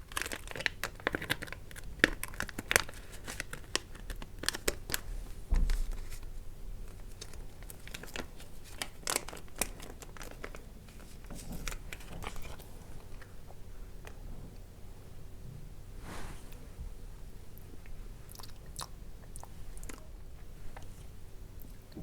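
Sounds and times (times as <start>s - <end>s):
packaging crinkling: 0.0s - 5.1s, 5.7s - 12.7s.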